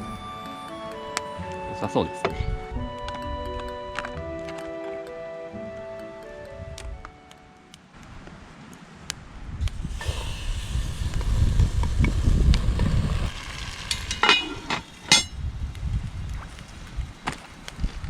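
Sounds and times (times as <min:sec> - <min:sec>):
batter sizzling in a pot: 0:09.8 - 0:15.3
sharp metal clinks: 0:13.9 - 0:15.4.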